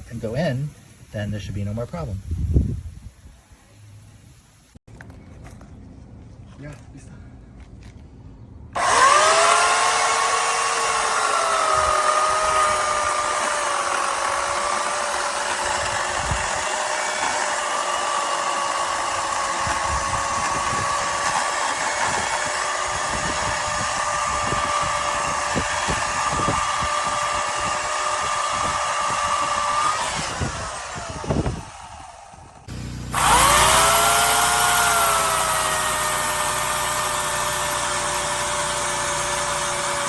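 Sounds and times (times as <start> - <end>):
electric chainsaw motor whining: 8.8 - 40.0.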